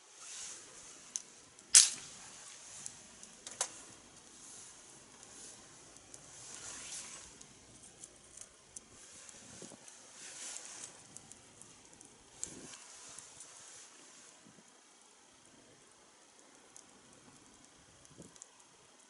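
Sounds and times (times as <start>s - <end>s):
fire hissing: 0.0s - 19.0s
wood fire popping: 0.0s - 19.0s.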